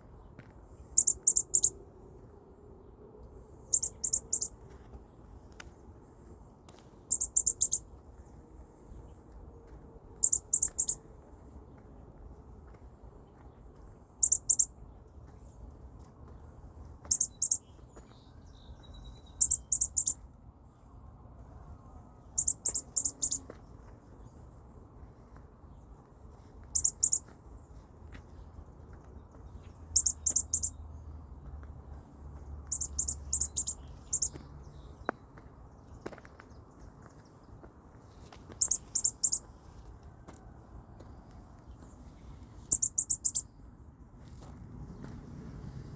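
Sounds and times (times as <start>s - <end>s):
baby bird chirping: 1.0s - 1.7s, 3.7s - 4.5s, 7.1s - 7.8s, 10.2s - 11.0s, 14.2s - 14.7s, 17.1s - 17.6s, 19.4s - 20.2s, 22.4s - 23.4s, 26.7s - 27.2s, 29.9s - 30.8s, 32.7s - 34.4s, 38.6s - 39.4s, 42.7s - 43.4s.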